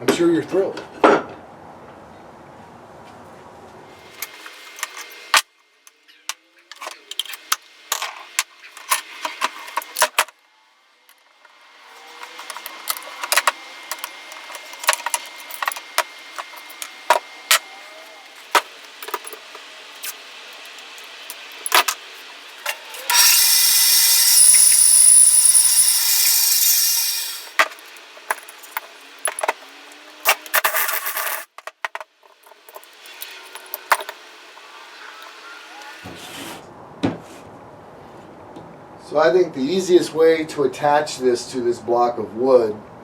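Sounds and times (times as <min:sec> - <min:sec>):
loud raspy noise: 0:23.0 - 0:27.6.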